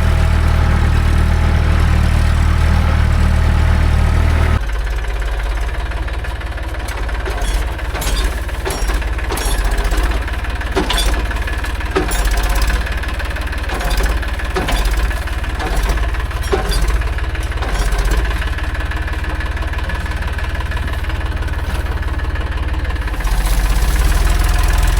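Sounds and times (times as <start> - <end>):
tractor diesel engine running: 0.0 - 24.9
metal knocks and clanks: 6.9 - 23.7.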